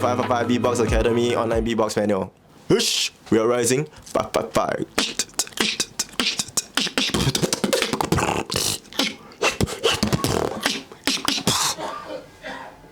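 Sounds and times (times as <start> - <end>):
person beatboxing: 4.0 - 11.8.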